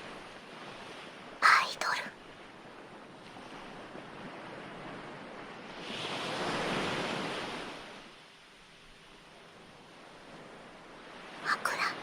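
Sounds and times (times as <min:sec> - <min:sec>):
ocean waves washing on shore: 0:00.0 - 0:12.0.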